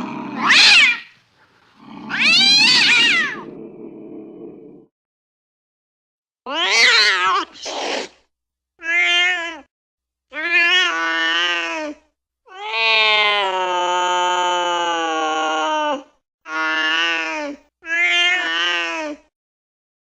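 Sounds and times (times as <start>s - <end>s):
cat yowling: 0.0s - 1.2s, 2.0s - 3.5s, 6.5s - 8.0s, 8.8s - 9.7s, 10.4s - 15.8s.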